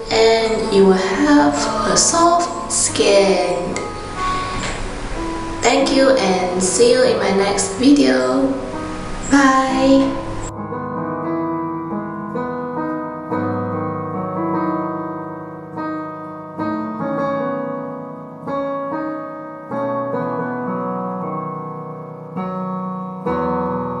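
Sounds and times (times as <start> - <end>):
slow piano chords: 0.0 - 24.0.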